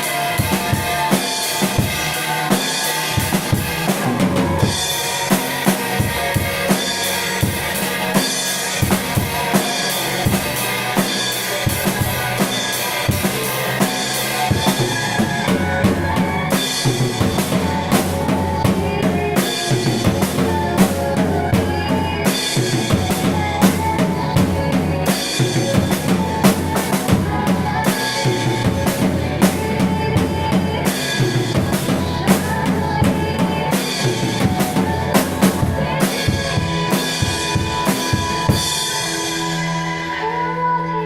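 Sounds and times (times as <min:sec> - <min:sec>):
drum kit playing: 0:00.0 - 0:40.3
backing music: 0:00.0 - 0:41.0.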